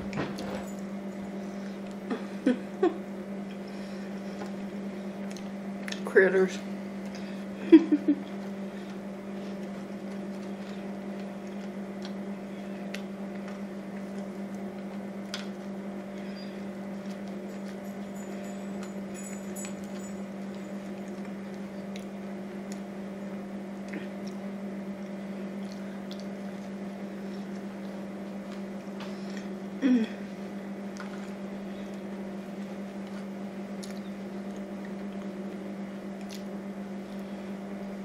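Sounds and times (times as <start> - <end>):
steady low hum: 0.0 - 38.0
person chewing food: 3.4 - 6.0, 8.2 - 23.0, 23.7 - 29.7, 30.8 - 37.4.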